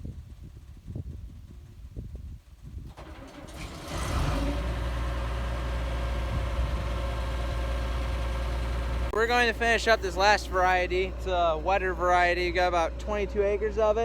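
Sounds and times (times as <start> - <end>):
vehicle engine droning: 2.9 - 14.0.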